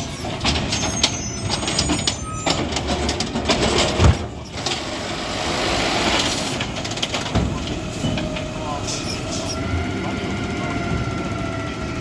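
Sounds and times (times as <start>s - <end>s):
high squeals: 0.0s - 2.6s
metal clanks and bangs: 0.0s - 5.0s, 6.0s - 9.5s
garbage truck engine running: 0.0s - 12.0s.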